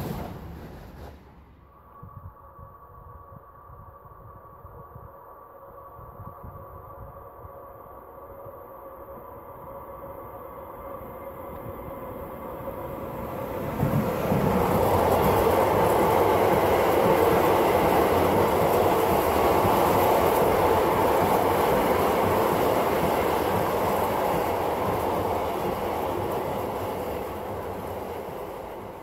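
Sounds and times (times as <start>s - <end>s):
wagons rolling past: 0.0s - 1.5s
electric freight train passing: 0.0s - 2.0s, 6.8s - 29.0s.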